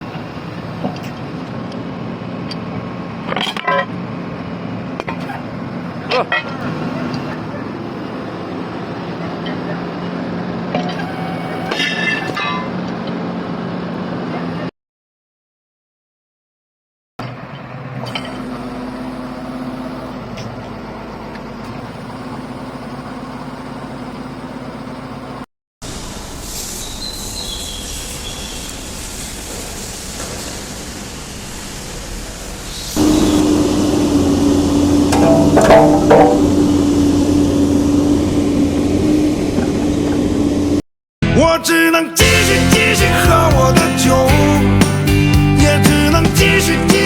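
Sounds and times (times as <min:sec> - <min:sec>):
excavator diesel engine running: 0:04.0 - 0:12.2, 0:17.3 - 0:40.8, 0:42.2 - 0:47.0.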